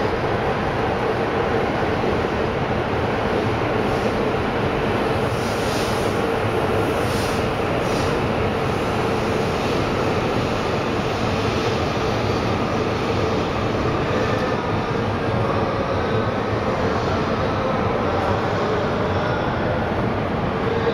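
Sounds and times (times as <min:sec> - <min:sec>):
train wheels rumbling on rails: 0:00.0 - 0:20.9.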